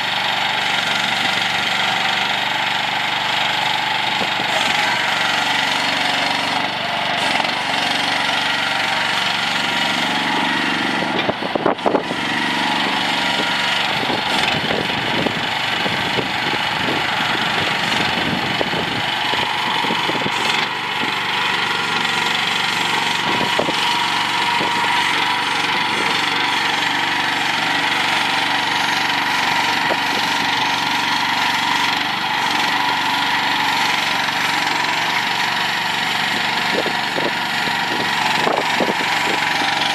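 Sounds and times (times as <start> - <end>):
mini excavator engine running: 0.0 - 39.9.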